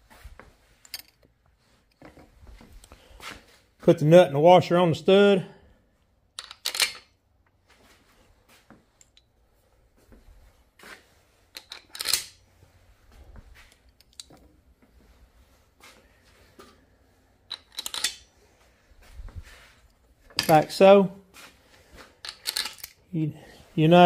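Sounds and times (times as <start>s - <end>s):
small steel parts clinking: 0.8s - 1.3s, 6.4s - 7.1s, 11.5s - 12.4s, 13.7s - 14.4s, 17.5s - 18.3s, 20.3s - 20.8s, 22.2s - 23.0s.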